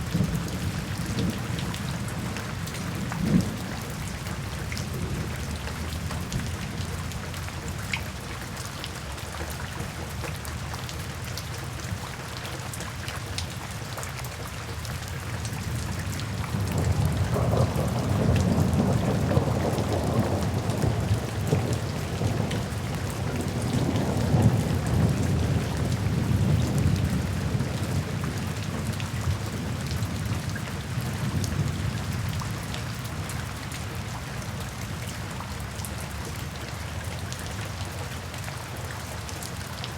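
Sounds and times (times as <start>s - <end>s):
steady rain falling: 0.0s - 39.9s
rolling thunder: 16.5s - 30.4s.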